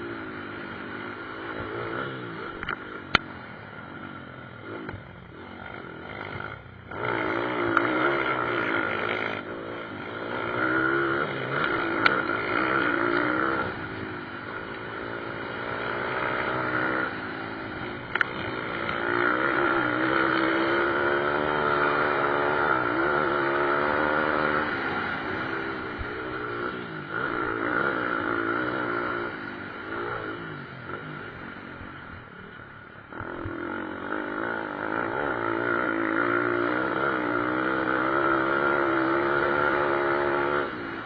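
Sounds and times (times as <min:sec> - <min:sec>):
dirt bike engines revving: 0:00.0 - 0:41.0.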